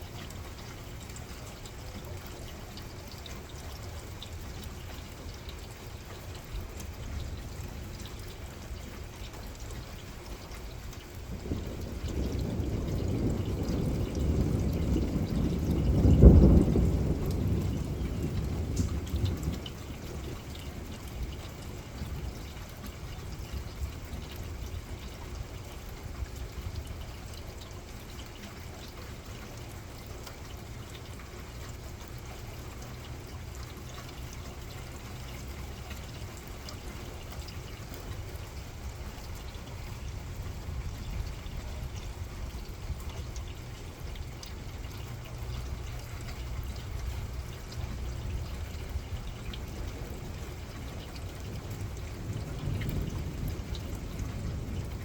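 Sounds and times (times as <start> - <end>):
low steady rumble: 0.0 - 55.0
rain pouring: 0.0 - 55.0.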